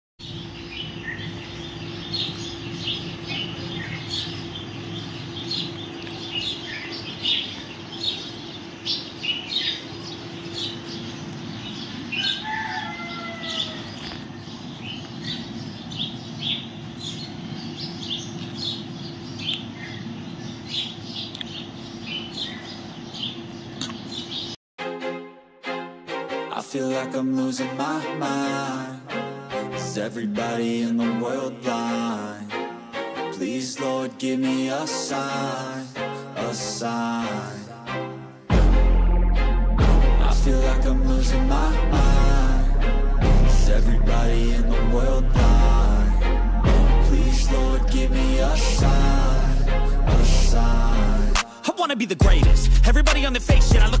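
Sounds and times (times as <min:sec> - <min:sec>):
birds chirping: 0:00.2 - 0:24.6
steady low hum: 0:38.5 - 0:51.4.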